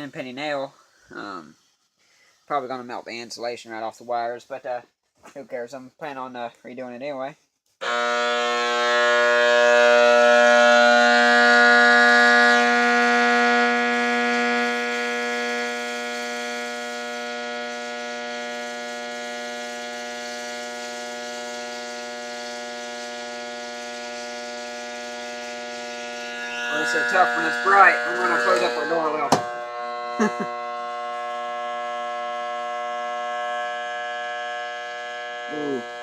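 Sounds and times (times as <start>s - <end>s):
transformer humming: 7.8s - 20.3s, 23.0s - 36.0s.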